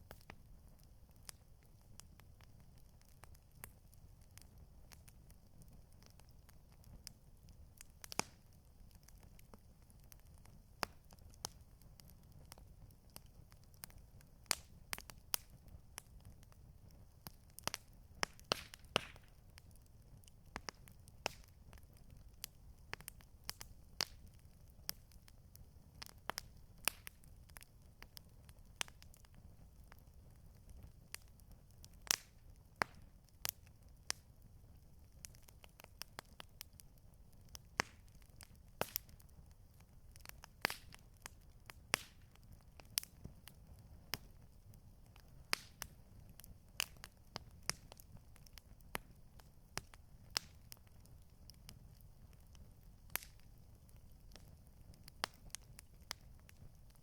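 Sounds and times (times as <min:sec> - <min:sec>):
campfire crackling: 0:00.0 - 0:57.0.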